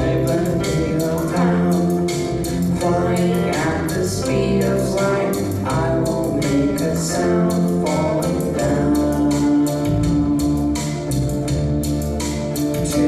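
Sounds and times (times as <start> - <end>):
drums keeping a steady beat: 0.0 - 13.0
live band music: 0.0 - 13.0.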